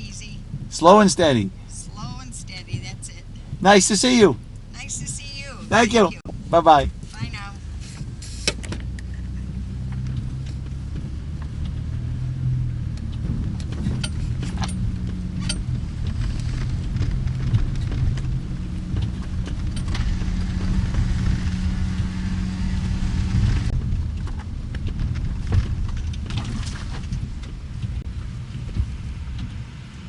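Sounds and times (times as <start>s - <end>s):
car engine and road noise: 0.0s - 30.0s
hiss: 7.8s - 8.6s
light ticks: 12.8s - 20.0s, 27.0s - 29.6s.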